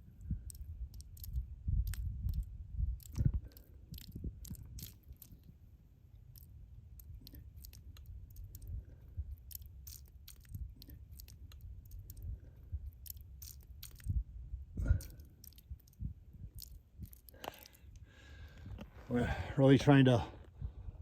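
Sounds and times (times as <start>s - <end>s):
low rumble: 7.9s - 21.0s.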